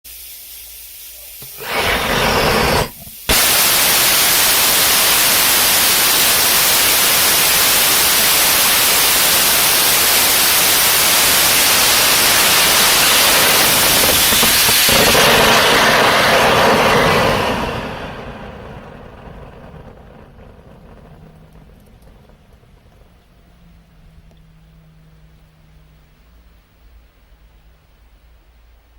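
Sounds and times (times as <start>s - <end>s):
short burst of hissing: 0.1s - 19.2s
rocket engine roaring: 1.4s - 25.9s.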